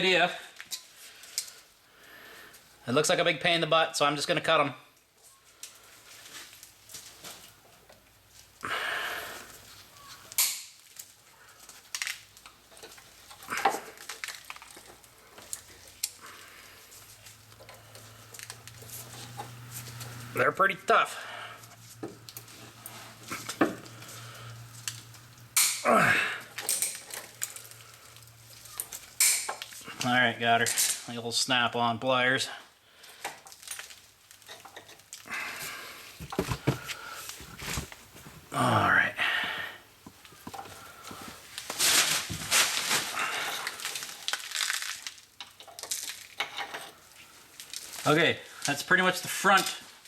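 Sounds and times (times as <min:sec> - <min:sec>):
scraping and crunching of cables: 0:10.1 - 0:20.7, 0:21.4 - 0:31.1, 0:33.1 - 0:38.7, 0:40.0 - 0:50.0
pliers cutting metal cable: 0:10.4 - 0:10.7, 0:25.6 - 0:25.9
low steady hum: 0:16.5 - 0:30.5.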